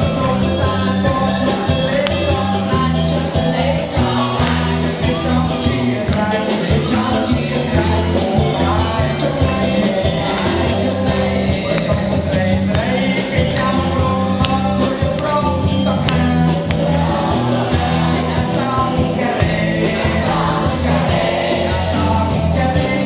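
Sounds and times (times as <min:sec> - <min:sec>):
song with singing over bass beat: 0:00.0 - 0:23.0.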